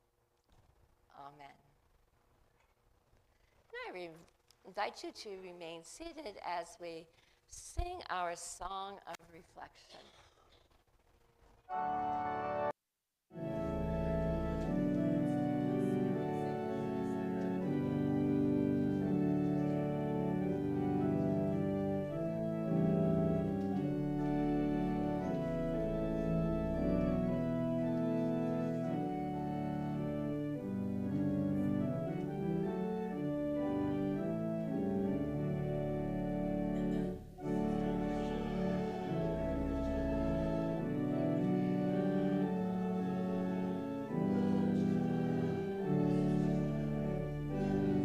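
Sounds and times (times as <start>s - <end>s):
church organ playing hymn chords: 11.7s - 12.7s, 13.4s - 48.0s.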